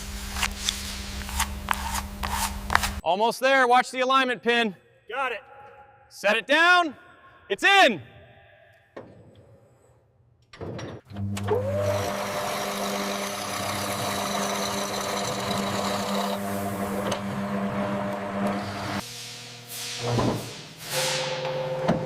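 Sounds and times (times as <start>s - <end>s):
motor-driven tool whining and humming: 11.2s - 18.9s.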